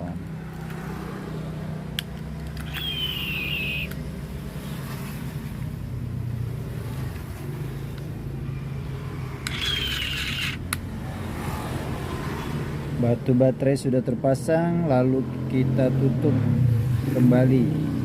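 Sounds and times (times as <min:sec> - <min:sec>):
low engine-like hum: 0:00.0 - 0:11.5
plastic clicks of batteries: 0:01.9 - 0:03.1, 0:03.8 - 0:04.0
short falling squeals: 0:02.6 - 0:03.9.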